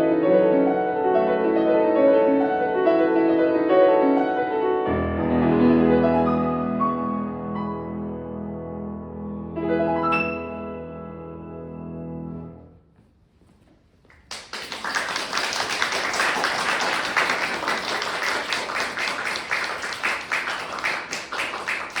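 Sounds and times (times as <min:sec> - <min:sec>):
piano chord: 0:00.0 - 0:12.8
audience applause: 0:14.1 - 0:22.0.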